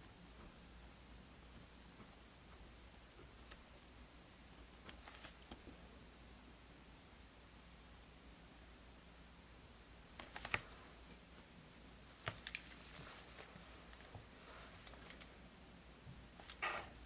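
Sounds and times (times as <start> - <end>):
paper rustling: 4.9 - 5.6, 12.1 - 15.3
stationery clicks and taps: 10.2 - 10.7.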